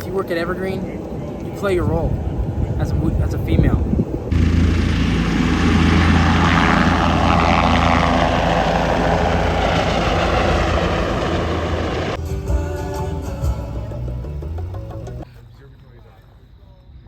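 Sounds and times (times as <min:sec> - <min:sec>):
loud engine drone: 0:04.3 - 0:12.2.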